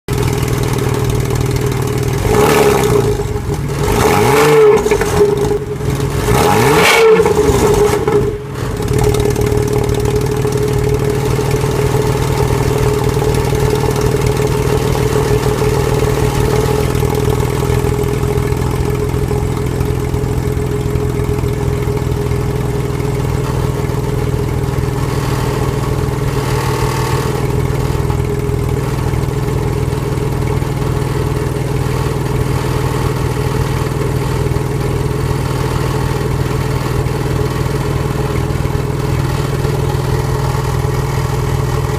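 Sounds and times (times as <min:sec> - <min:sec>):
car engine revving and idling: 0:00.1 - 0:41.9.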